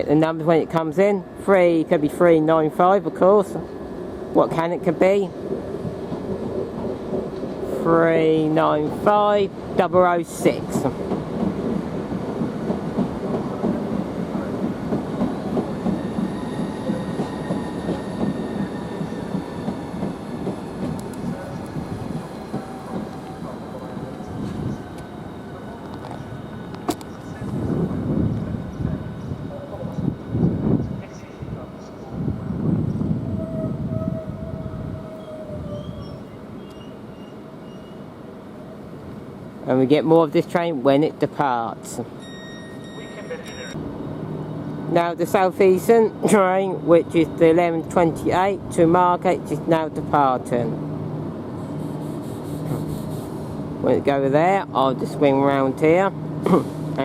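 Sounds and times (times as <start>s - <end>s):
train wheels on rails: 0.0s - 33.1s.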